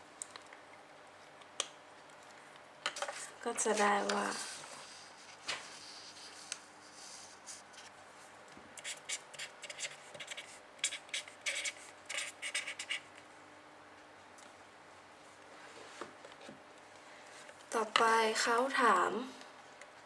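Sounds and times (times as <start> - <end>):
pen scratching on paper: 8.8 - 13.0.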